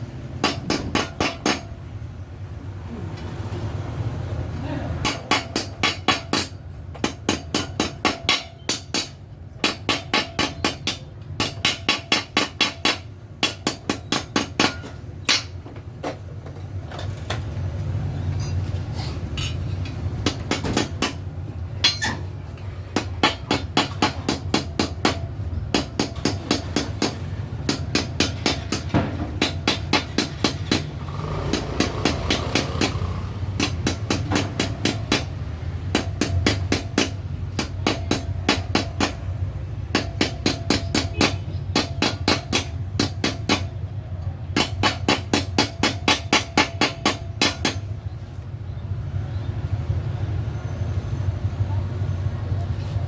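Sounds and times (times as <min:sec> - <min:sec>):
hammer on sheet metal: 0:00.4 - 0:01.8, 0:05.0 - 0:15.6, 0:20.2 - 0:21.2, 0:23.0 - 0:43.9, 0:44.5 - 0:48.1.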